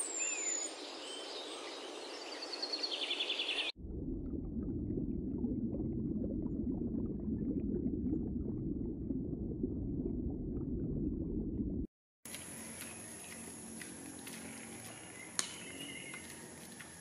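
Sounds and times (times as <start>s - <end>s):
aquarium water rumble: 3.7s - 11.9s
faint crackling and bubbling: 3.7s - 17.0s.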